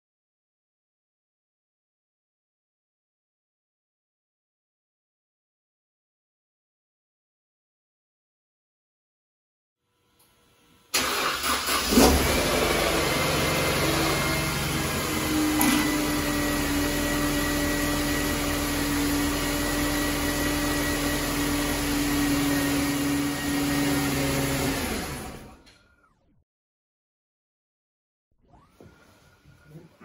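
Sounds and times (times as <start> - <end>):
car engine starting and idling: 10.9 - 25.8.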